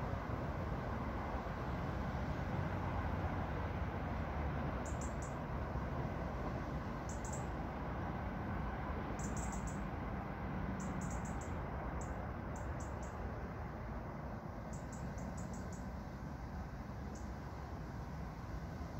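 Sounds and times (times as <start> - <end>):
outdoor rumble and hiss: 0.0 - 18.9
small bird high chirps: 9.2 - 9.8, 14.7 - 15.9.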